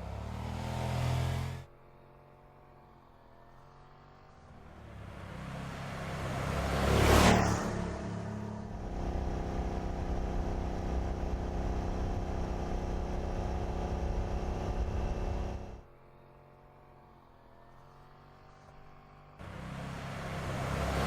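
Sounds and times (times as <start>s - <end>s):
car engine running: 8.3s - 15.8s, 18.9s - 21.0s.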